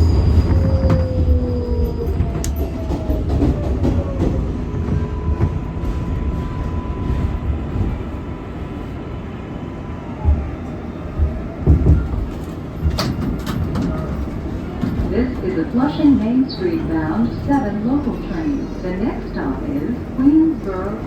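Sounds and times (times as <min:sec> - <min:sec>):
subway train rumble and wheel noise: 0:00.0 - 0:21.0.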